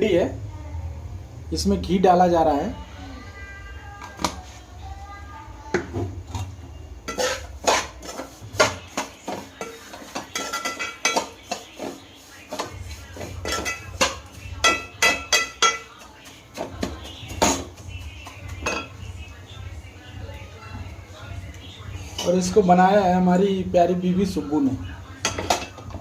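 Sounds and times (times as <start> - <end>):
metal spoon scraping a metal pan: 7.1 - 19.0.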